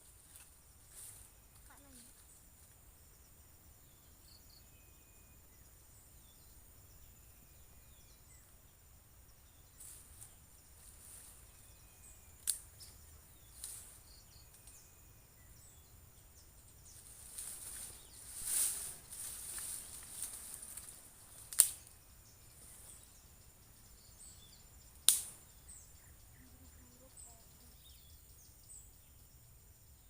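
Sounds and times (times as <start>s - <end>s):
cricket drone: 0.0s - 30.0s
bird chirps: 3.0s - 30.0s
sharp clicks or rustles: 18.4s - 21.9s.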